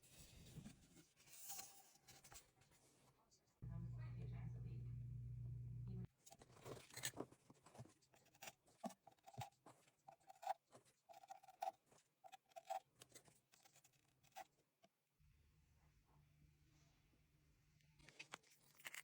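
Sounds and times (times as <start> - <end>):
handling clicks taps and scrapes: 6.2 - 15.0.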